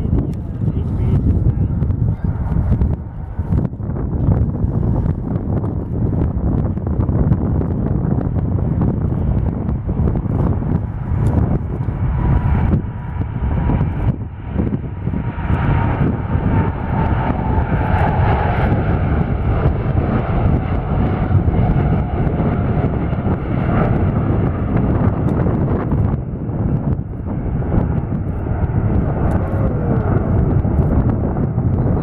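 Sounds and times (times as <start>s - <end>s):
jet airliner engines roaring: 0.0s - 32.0s.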